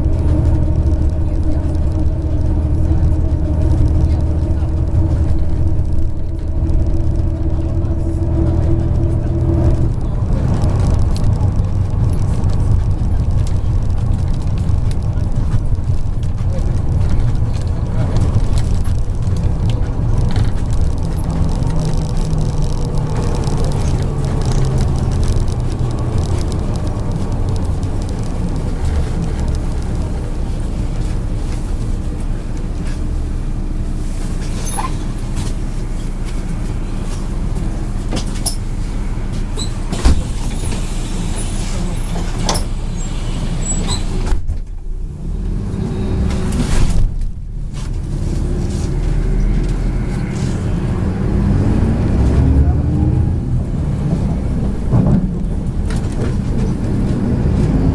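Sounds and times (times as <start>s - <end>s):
body clicks and rattles: 0.0s - 33.2s, 53.5s - 57.9s
bus engine running: 0.0s - 57.9s
road noise: 0.0s - 57.9s.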